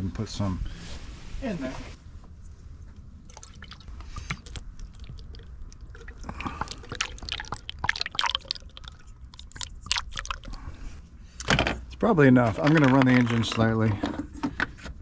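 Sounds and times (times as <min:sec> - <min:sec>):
liquid glugging and splashing: 0:03.0 - 0:10.8.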